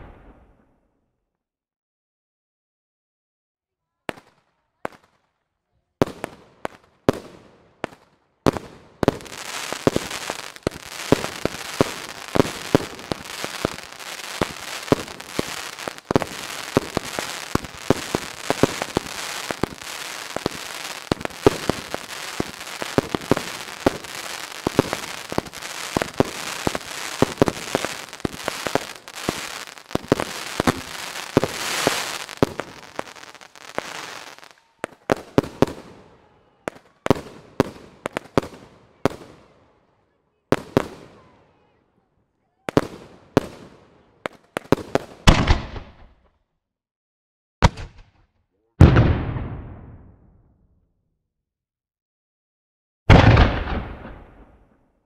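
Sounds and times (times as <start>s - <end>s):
firework bangs: 0.0s - 0.6s, 6.0s - 39.4s, 42.7s - 46.1s, 48.8s - 50.2s, 53.1s - 54.7s
firework crackling: 8.5s - 36.0s.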